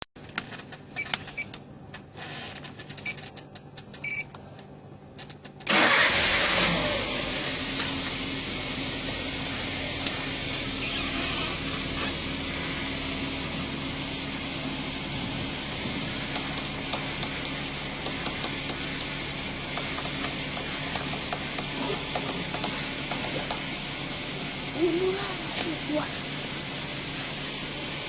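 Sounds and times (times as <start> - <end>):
short electronic beeps: 4.0 - 4.3
vehicle engine starting and idling: 5.6 - 28.0.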